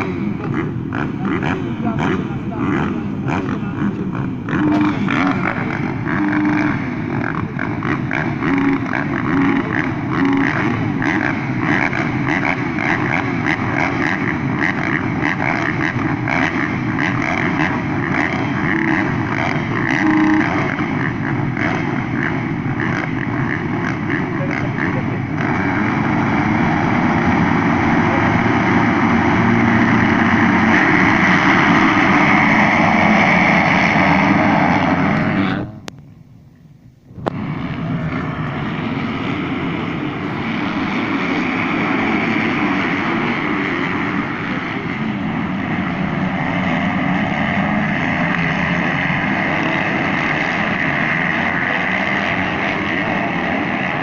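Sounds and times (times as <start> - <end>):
motocross motorcycles racing: 0.0 - 35.9, 37.1 - 54.0.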